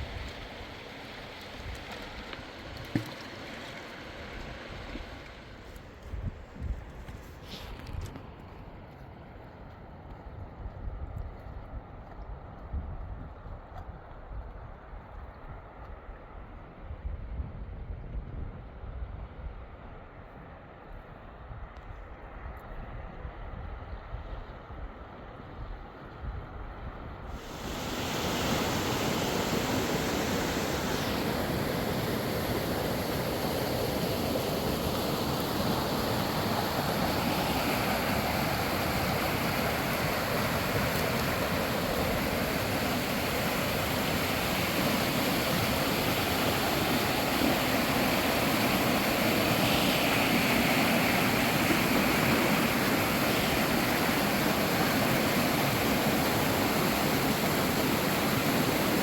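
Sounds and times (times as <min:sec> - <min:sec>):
river water rushing: 0:00.0 - 0:06.0, 0:27.4 - 0:59.0.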